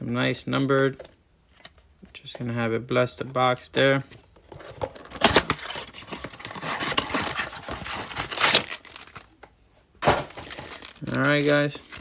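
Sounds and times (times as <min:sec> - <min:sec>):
plastic wrap crinkling: 0:04.9 - 0:09.4, 0:10.0 - 0:12.0
packaging ripping: 0:05.1 - 0:09.3, 0:10.0 - 0:12.0.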